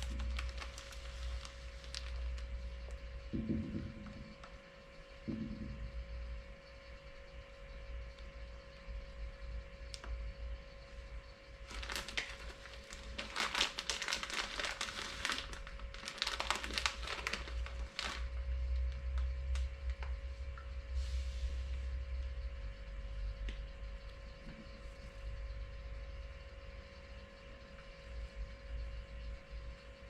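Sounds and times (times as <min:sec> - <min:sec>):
packaging crinkling: 0:00.0 - 0:02.6, 0:11.6 - 0:18.4
steady low hum: 0:00.0 - 0:30.0.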